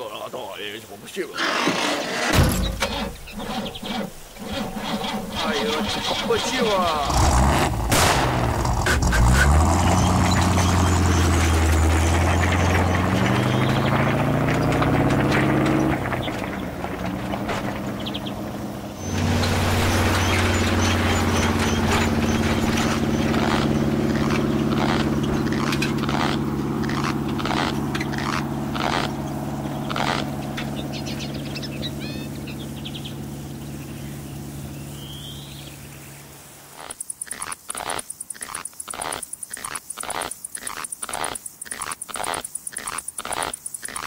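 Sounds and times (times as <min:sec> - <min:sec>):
tyres crunching gravel: 0:00.0 - 0:44.0
truck engine pulling away: 0:01.4 - 0:36.4
bird chirps: 0:02.6 - 0:04.3, 0:09.2 - 0:14.8, 0:17.9 - 0:44.0.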